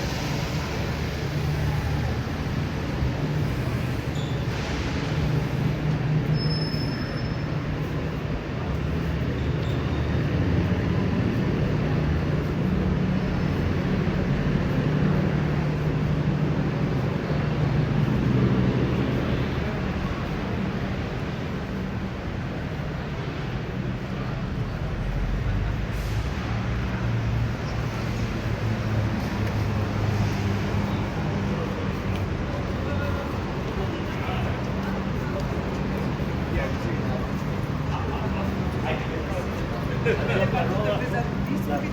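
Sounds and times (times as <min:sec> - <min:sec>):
bus engine drone: 0:00.0 - 0:41.9
road noise: 0:00.0 - 0:41.9
vehicle engine humming: 0:24.9 - 0:41.9.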